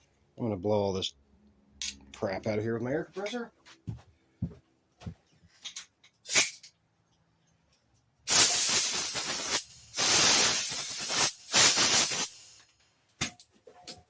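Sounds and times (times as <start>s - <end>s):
compressed air blow gun hissing: 8.3s - 12.6s.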